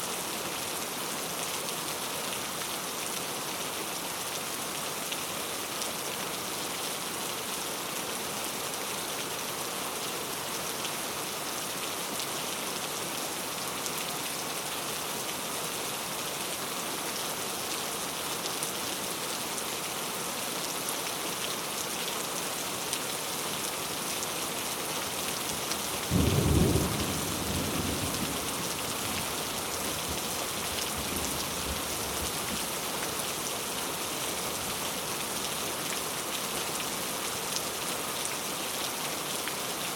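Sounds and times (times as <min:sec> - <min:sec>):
steady rain falling: 0:00.0 - 0:39.9
low rumble of thunder: 0:26.1 - 0:29.3.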